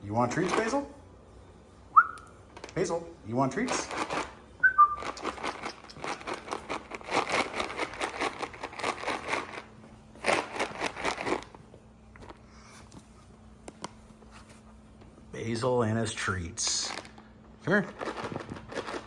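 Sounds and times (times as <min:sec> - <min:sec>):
plastic bag crinkling: 0:03.6 - 0:11.7, 0:16.7 - 0:19.0.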